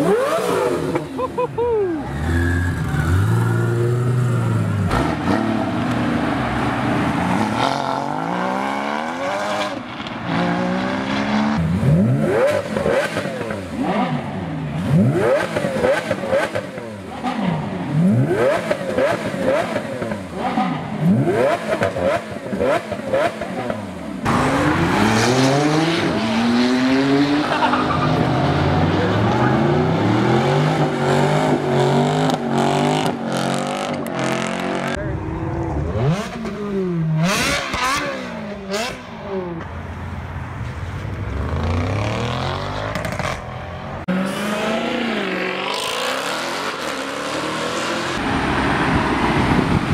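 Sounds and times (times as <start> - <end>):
car engine revving: 0.0 - 1.4, 2.0 - 39.6.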